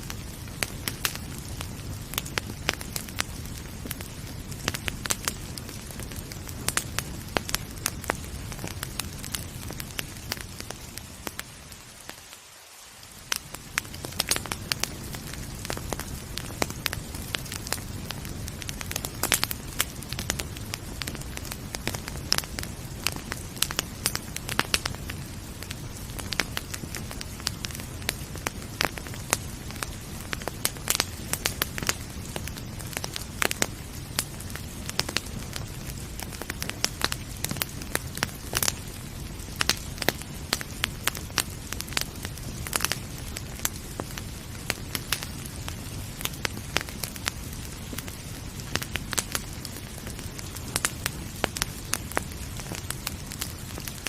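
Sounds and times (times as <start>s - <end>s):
rain hiss: 0.0s - 54.0s
wood fire crackling and popping: 0.0s - 54.0s.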